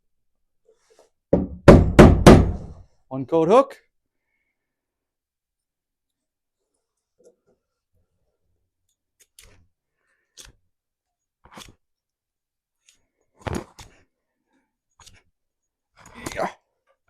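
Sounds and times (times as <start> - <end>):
hammer tapping on wood: 1.4 - 2.7.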